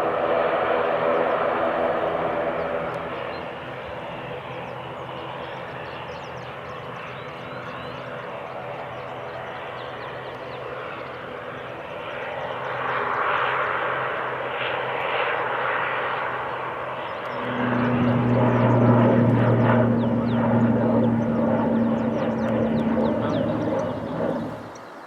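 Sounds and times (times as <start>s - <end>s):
airliner engines rushing: 0.0s - 25.0s
steady low hum: 15.4s - 25.0s.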